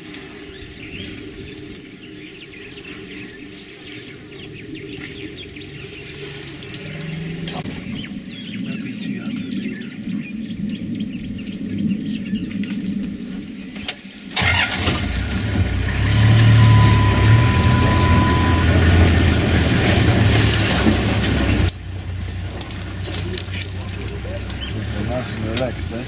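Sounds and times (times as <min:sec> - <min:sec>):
vehicle engine running: 0:14.4 - 0:26.0.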